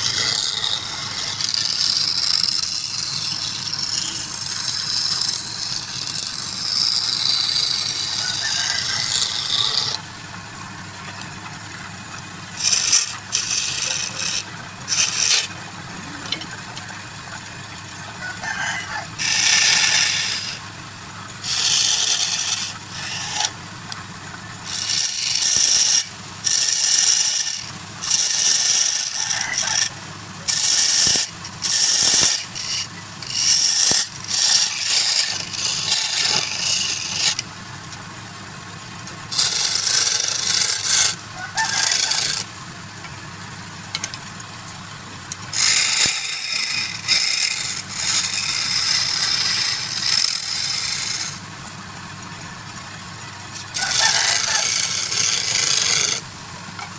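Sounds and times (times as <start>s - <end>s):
wood lathe humming: 0.0s - 11.4s, 12.3s - 17.8s, 18.9s - 37.5s, 39.3s - 42.6s, 45.5s - 56.3s
tool scraping spinning wood: 0.0s - 38.0s, 39.3s - 42.6s, 45.3s - 56.9s.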